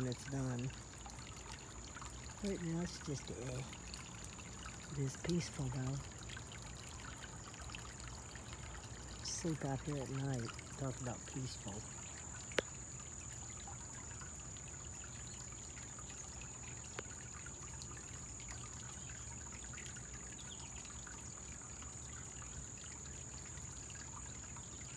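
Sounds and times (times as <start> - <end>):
small waterfall trickling: 0.0 - 24.9.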